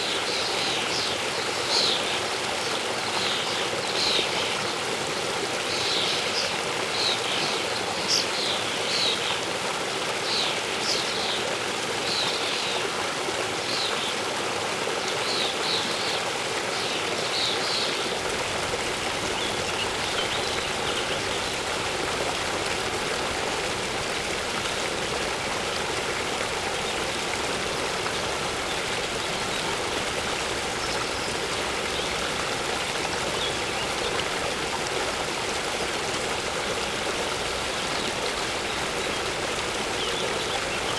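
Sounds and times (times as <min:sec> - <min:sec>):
waterfall rushing: 0:18.0 - 0:40.9
small birds chirping: 0:18.1 - 0:34.6, 0:36.8 - 0:40.9.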